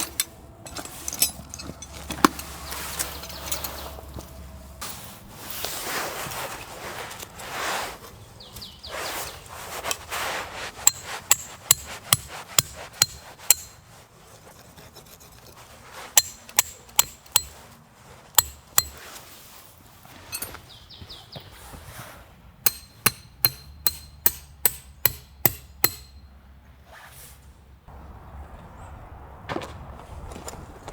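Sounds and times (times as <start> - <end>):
rustling and scraping: 0.0 - 22.4.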